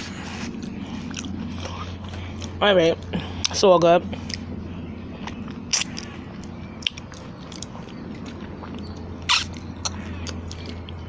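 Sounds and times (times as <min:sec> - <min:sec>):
person chewing food: 0:00.0 - 0:11.0
steady low hum: 0:00.0 - 0:11.0
wet mouth clicks and smacks: 0:05.2 - 0:11.0.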